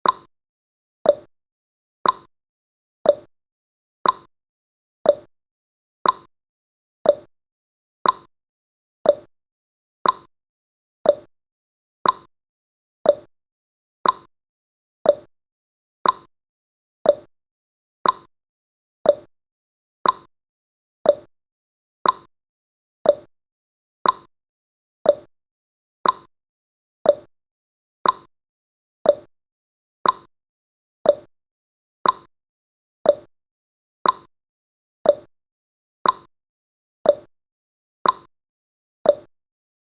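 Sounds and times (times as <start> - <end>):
timer ticking: 0.0 - 0.3, 1.0 - 1.3, 2.0 - 2.3, 3.0 - 3.3, 4.0 - 4.3, 5.1 - 5.3, 6.0 - 6.3, 7.0 - 7.3, 8.0 - 8.3, 9.0 - 9.3, 10.0 - 10.3, 11.0 - 11.3, 12.0 - 12.3, 13.0 - 13.3, 14.0 - 14.3, 15.0 - 15.3, 16.0 - 16.3, 17.0 - 17.3, 18.0 - 18.3, 19.0 - 19.3, 20.0 - 20.3, 21.0 - 21.3, 22.0 - 22.3, 23.0 - 23.3, 24.0 - 24.3, 25.0 - 25.3, 26.0 - 26.3, 27.0 - 27.3, 28.0 - 28.3, 29.0 - 29.3, 30.0 - 30.3, 31.0 - 31.3, 32.0 - 32.3, 33.0 - 33.3, 34.0 - 34.3, 35.0 - 35.3, 36.0 - 36.3, 37.0 - 37.3, 38.0 - 38.3, 39.1 - 39.3.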